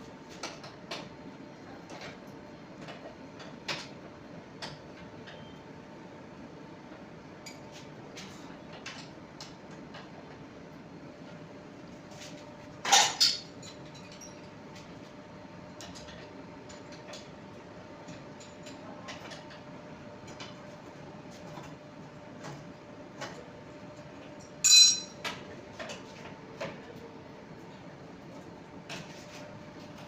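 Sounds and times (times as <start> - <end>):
metal tools clinking: 24.6 - 25.2
sharp metal clanks: 24.6 - 25.2.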